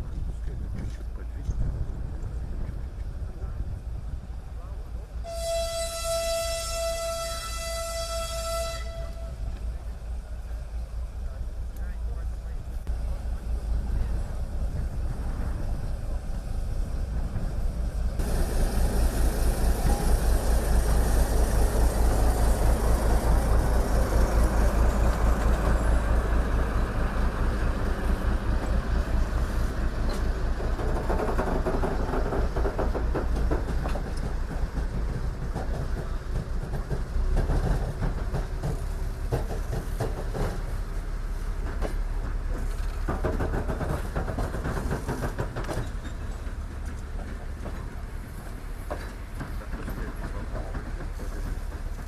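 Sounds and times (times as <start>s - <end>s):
train rumbling: 0.0s - 52.0s
wheel clicks over rail joints: 30.0s - 40.8s, 41.6s - 52.0s.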